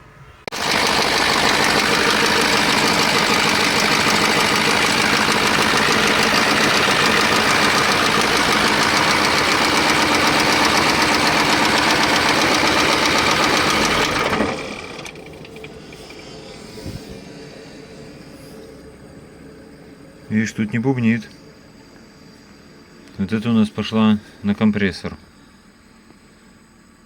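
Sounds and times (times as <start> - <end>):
truck diesel engine running: 0.5 - 19.9.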